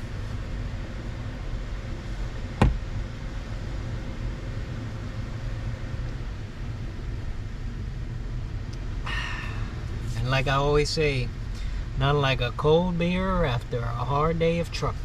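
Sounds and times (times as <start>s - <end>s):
sharp knock: 2.6s - 2.8s.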